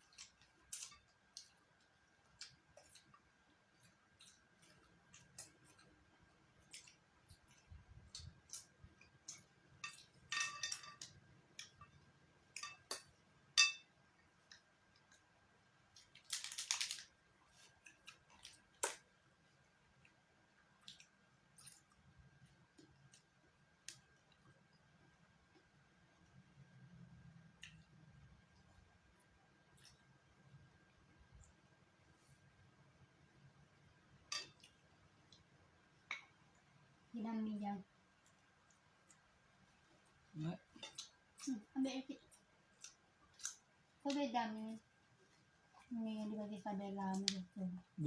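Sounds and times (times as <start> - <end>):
chewing: 0.0 - 10.3, 38.1 - 44.2.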